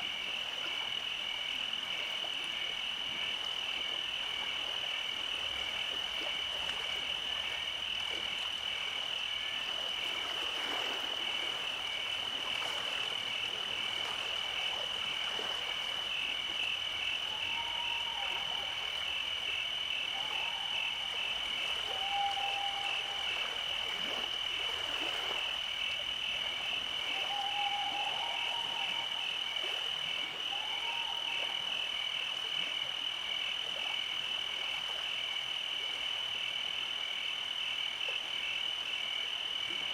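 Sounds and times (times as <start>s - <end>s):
frogs and insects trilling: 0.0s - 39.9s
low single frog calls: 15.6s - 32.7s.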